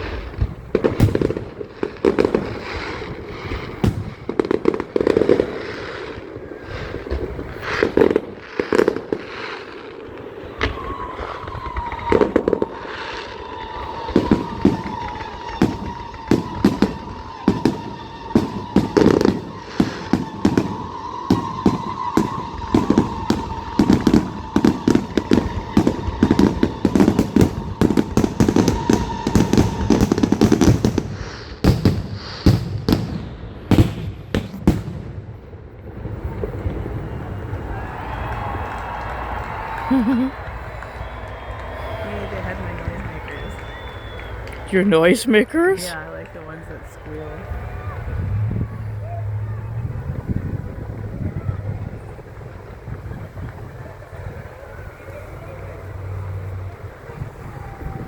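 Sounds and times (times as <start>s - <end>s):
fireworks bangs with crackle: 0.0s - 58.0s.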